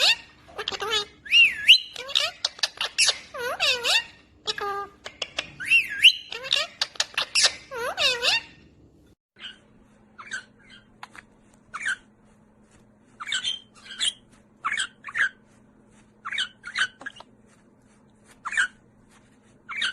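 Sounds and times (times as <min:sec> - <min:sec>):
parrot chattering and whistling: 0:00.0 - 0:08.6, 0:13.2 - 0:15.4, 0:16.2 - 0:17.3, 0:18.4 - 0:18.8, 0:19.6 - 0:19.9.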